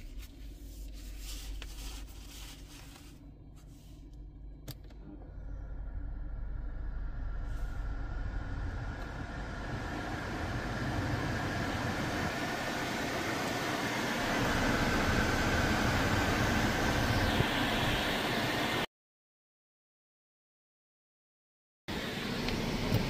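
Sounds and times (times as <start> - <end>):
low engine hum: 0.0 - 18.9, 21.9 - 23.0
air blower rushing: 7.2 - 18.8.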